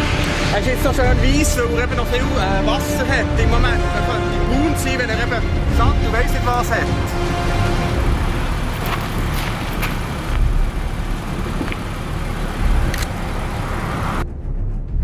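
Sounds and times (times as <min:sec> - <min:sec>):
low rumble: 0:04.4 - 0:15.0
faint clicks: 0:07.7 - 0:14.2.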